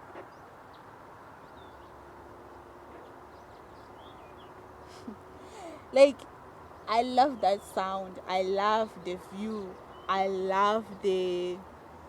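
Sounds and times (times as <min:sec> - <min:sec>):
faint hum: 0:04.8 - 0:11.7.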